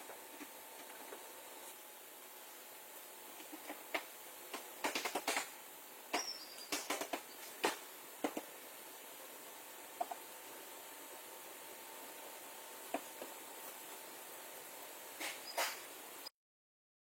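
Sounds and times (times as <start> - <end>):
faint steady hum: 0.0 - 16.3
sharp clicks and light knocks: 3.4 - 5.5, 6.1 - 8.5.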